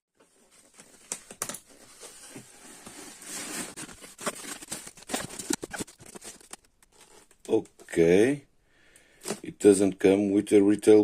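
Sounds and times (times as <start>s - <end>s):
packaging rustling and tearing: 0.2s - 7.3s.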